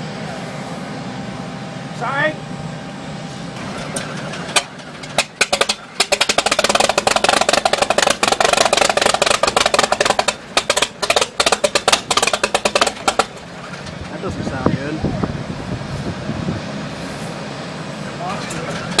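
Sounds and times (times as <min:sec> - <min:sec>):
aircraft engine coughing and popping: 0:03.5 - 0:14.5, 0:18.1 - 0:19.0.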